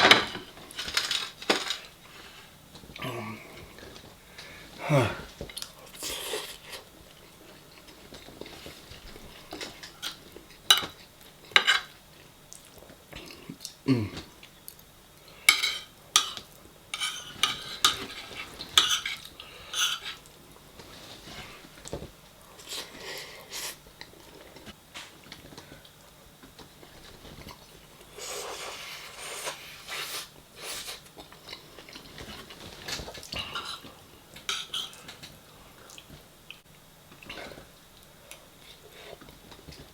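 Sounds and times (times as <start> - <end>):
cutlery clinking on a dish: 10.0 - 11.9, 15.5 - 20.2, 34.5 - 35.2
chewing: 22.6 - 39.9.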